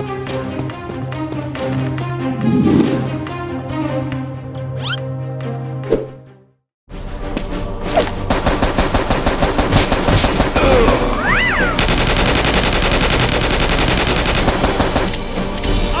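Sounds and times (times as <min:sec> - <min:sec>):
rapid automatic gunfire: 0:08.3 - 0:15.3.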